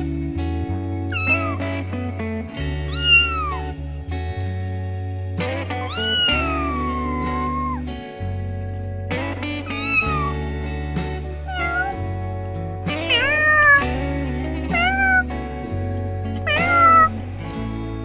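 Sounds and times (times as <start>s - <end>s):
background music with bass: 0.0s - 18.0s
cat meowing: 1.1s - 1.8s, 2.9s - 3.8s, 5.8s - 7.9s, 9.6s - 10.5s, 11.5s - 12.0s, 13.0s - 14.0s, 14.7s - 15.4s, 16.5s - 17.2s.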